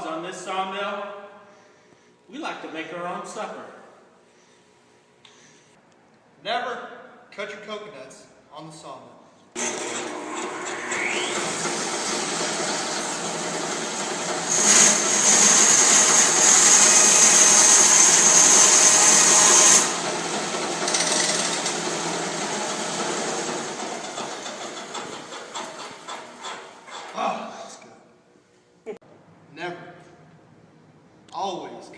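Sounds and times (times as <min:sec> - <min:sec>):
bandsaw mill cutting: 0:09.6 - 0:27.2.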